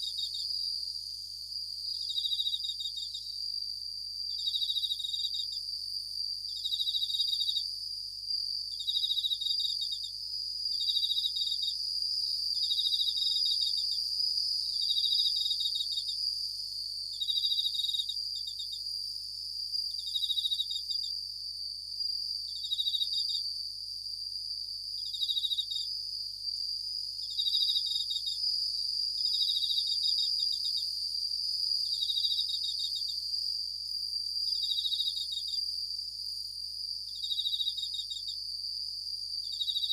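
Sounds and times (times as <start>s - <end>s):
cricket ringing trill: 37.1s - 38.4s
high-pitched insect drone: 39.5s - 39.9s.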